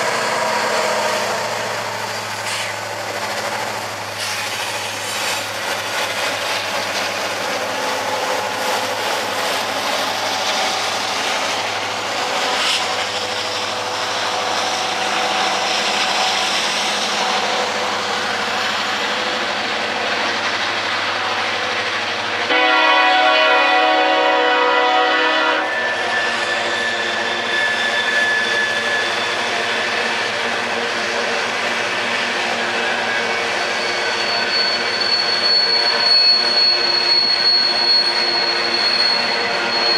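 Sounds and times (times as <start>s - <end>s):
freight train rumbling past: 0.0s - 39.9s
train air horn: 22.5s - 25.9s.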